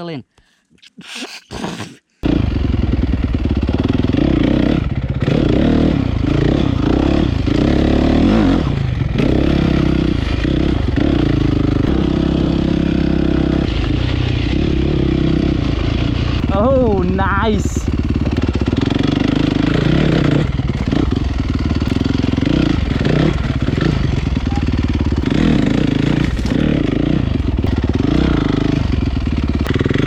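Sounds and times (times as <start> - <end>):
motorcycle engine revving: 2.2 - 30.0.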